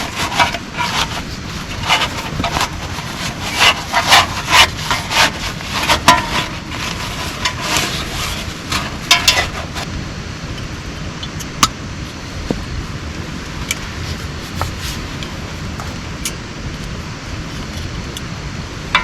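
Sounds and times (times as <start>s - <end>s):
scraping strokes: 0.0s - 9.9s, 13.9s - 16.0s.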